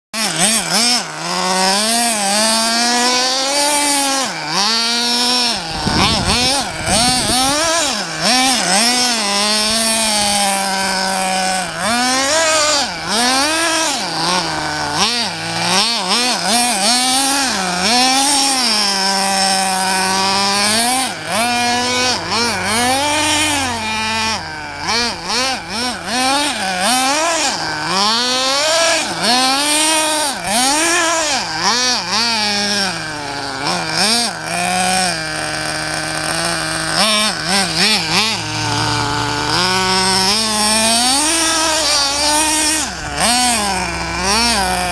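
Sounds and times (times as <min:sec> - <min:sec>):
rc buggy motor revving: 0:00.2 - 0:44.9.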